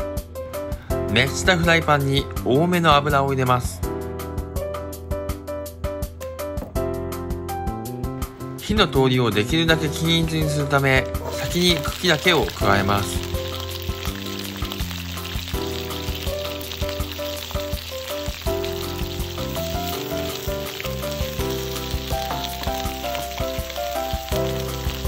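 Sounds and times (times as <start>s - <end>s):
background music: 0.0s - 25.0s
stems sizzling in hot oil: 11.2s - 25.0s.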